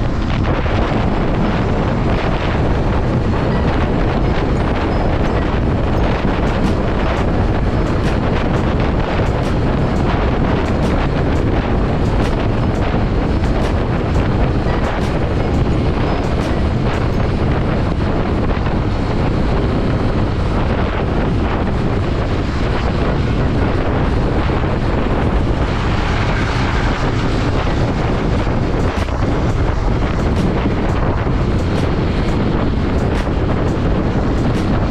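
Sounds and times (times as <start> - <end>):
motorcycle engine and road noise: 0.0 - 34.9
wind rushing over microphone: 0.0 - 34.9.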